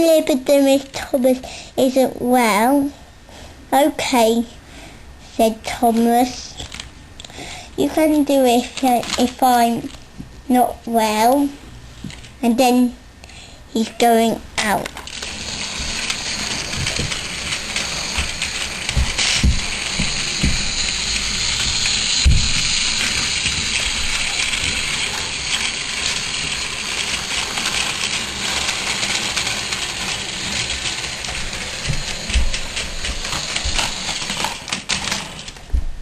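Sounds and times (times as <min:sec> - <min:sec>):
toy train running on track: 0:07.9 - 0:10.0, 0:14.6 - 0:35.5.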